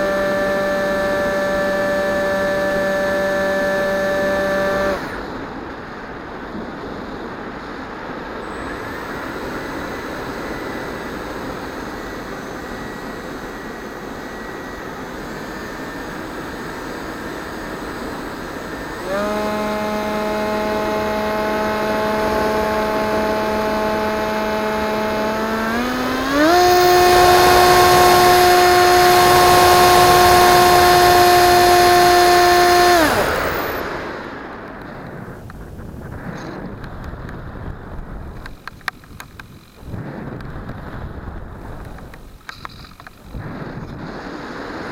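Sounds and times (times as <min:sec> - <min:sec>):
model plane electric motor whining: 0:00.0 - 0:05.7, 0:08.3 - 0:34.3.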